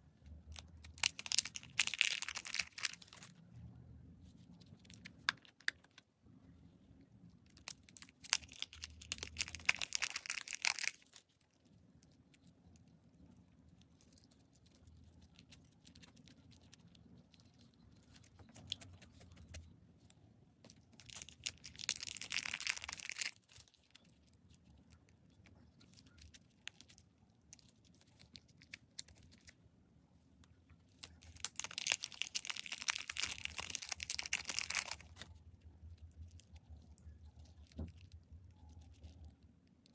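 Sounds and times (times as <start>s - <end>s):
slime crackling and popping: 0.5s - 3.3s, 7.5s - 12.8s, 20.7s - 25.0s, 30.9s - 35.3s.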